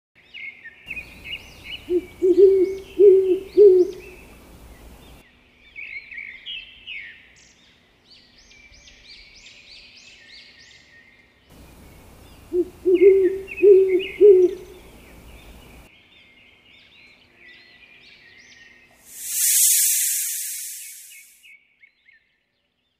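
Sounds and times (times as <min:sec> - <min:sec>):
owl hooting: 0:00.9 - 0:05.0, 0:11.6 - 0:15.9, 0:19.1 - 0:21.3
higher chirping calls: 0:00.9 - 0:05.2, 0:11.6 - 0:15.9, 0:19.1 - 0:21.4.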